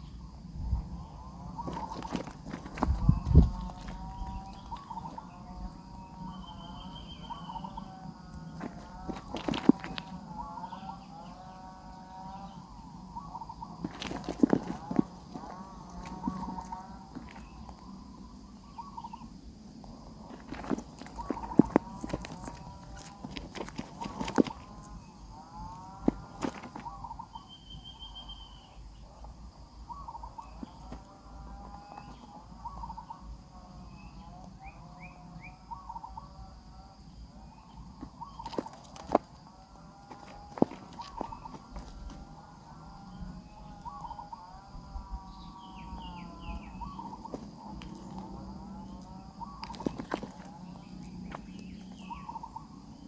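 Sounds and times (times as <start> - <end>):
nestlings cheeping: 1.0 - 28.8.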